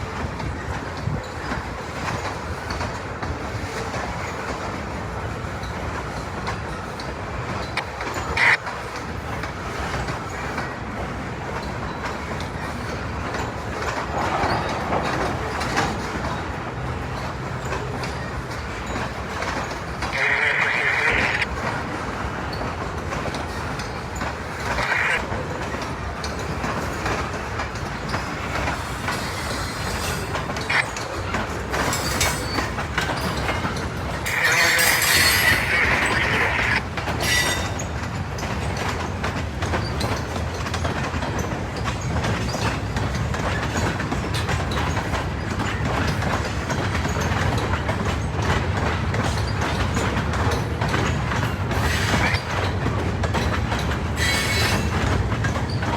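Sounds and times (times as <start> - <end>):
train wheels clicking over rails: 0.0 - 55.9
train wheels squealing: 27.9 - 39.0, 49.2 - 55.9.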